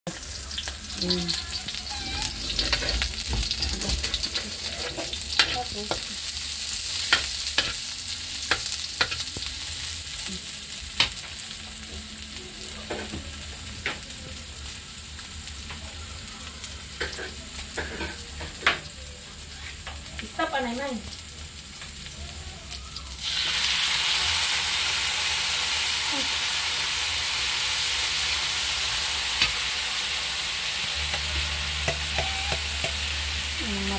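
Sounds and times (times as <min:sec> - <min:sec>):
onion and garlic sizzling in oil: 0:00.1 - 0:33.9
spatula knocking and scraping pan: 0:02.2 - 0:06.1, 0:31.1 - 0:33.1.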